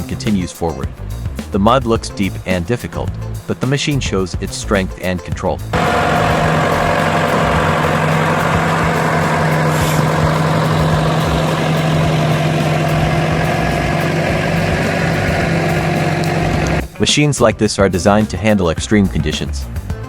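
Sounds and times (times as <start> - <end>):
diesel engine running: 5.6 - 17.0.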